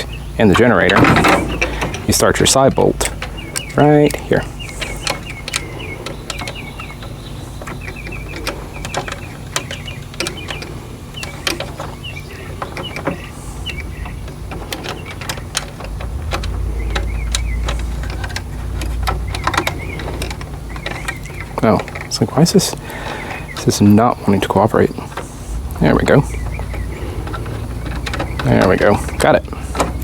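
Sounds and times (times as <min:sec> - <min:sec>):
low rumble: 0:12.2 - 0:22.8, 0:24.4 - 0:30.0.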